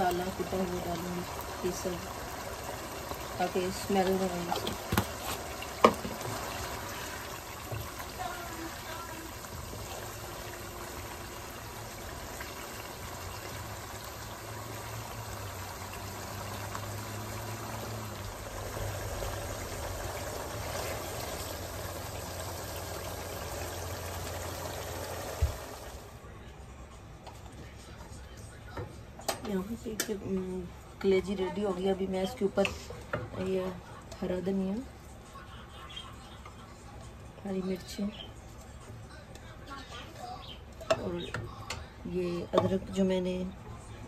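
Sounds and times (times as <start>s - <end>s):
meat sizzling in gravy: 0.0s - 26.1s
wooden spatula knocking on pan: 5.8s - 6.3s.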